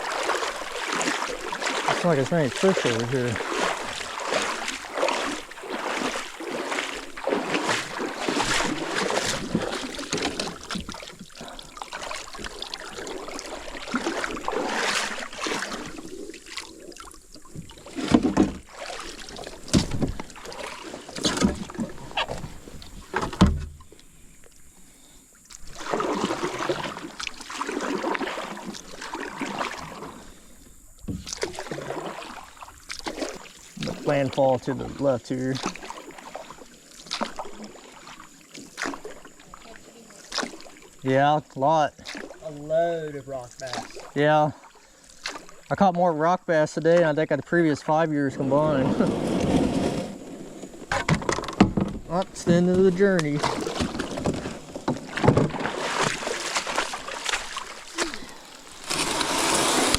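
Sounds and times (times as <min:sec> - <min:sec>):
paddle strokes splashing: 0:00.0 - 0:59.9
knocks against boat hull: 0:19.7 - 0:20.3, 0:23.1 - 0:23.8.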